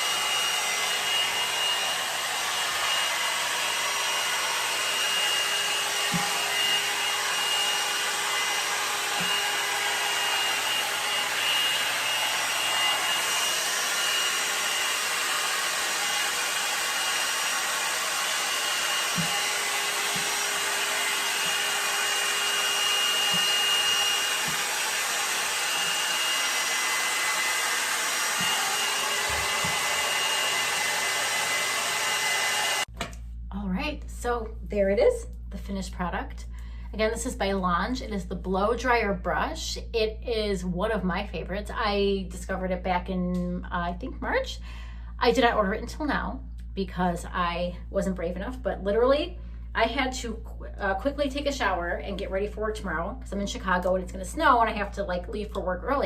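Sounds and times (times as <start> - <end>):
blow dryer brush running: 0.0 - 33.2.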